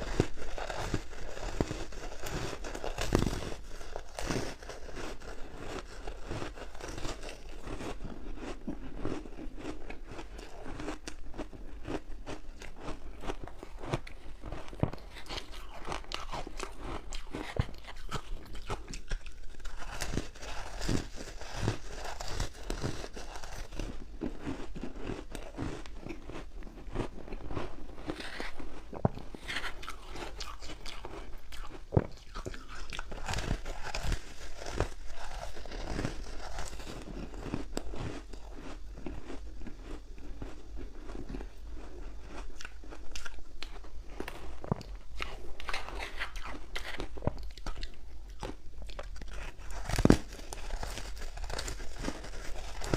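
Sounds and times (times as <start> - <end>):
crunchy ice being chewed: 0.0 - 52.9.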